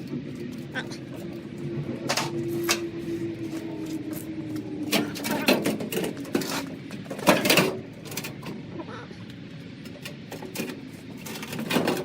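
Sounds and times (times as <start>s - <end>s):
dryer parts knocking and scraping: 0.0s - 8.6s, 9.8s - 12.0s
parts clattering: 2.1s - 8.6s, 9.8s - 12.0s.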